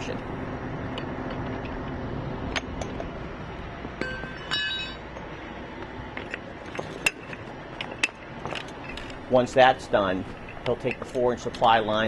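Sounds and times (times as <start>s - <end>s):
metal fittings clinking and knocking: 4.0s - 5.3s, 10.2s - 11.8s
metallic ringing clank: 4.0s - 5.3s, 6.2s - 12.0s.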